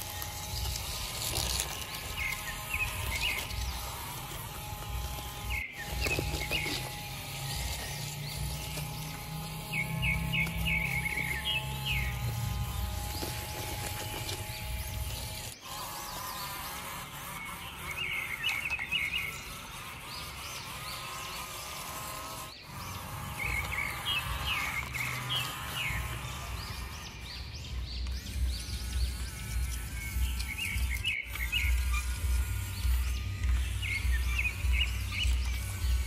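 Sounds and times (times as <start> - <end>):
low rumbling hum: 0.0 - 15.6
small birds twittering: 0.0 - 36.0.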